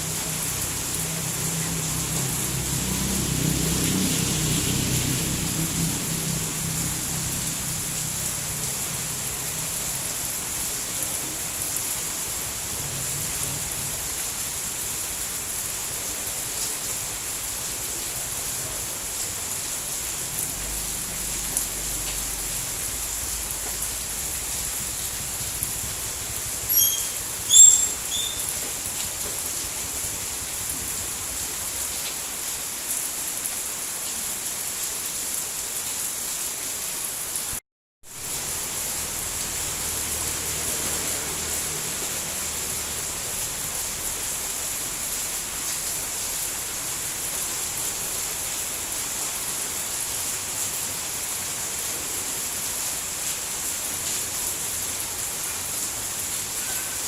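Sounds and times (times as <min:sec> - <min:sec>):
steady rainfall: 0:00.0 - 0:57.0
short high chirps: 0:26.7 - 0:28.5.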